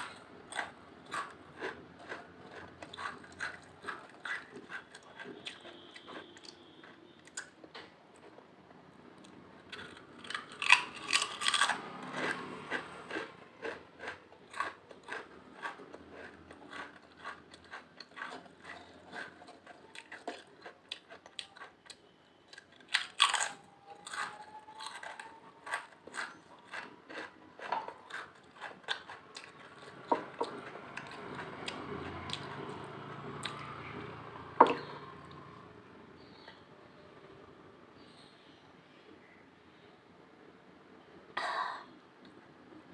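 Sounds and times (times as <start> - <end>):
crunching potato chips: 0.0 - 7.6, 9.2 - 33.8.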